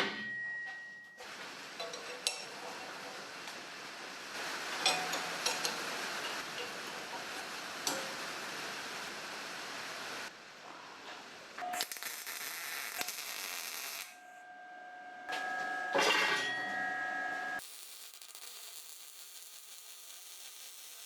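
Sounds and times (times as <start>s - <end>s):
steady hiss: 1.2s - 10.6s, 17.6s - 21.0s.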